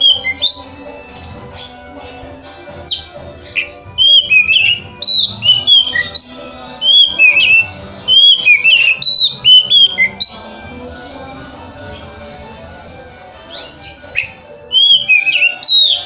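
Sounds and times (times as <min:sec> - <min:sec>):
songbird whistled phrases: 0:00.0 - 0:00.9, 0:02.8 - 0:11.0, 0:13.5 - 0:16.0
faint background music: 0:00.0 - 0:16.0.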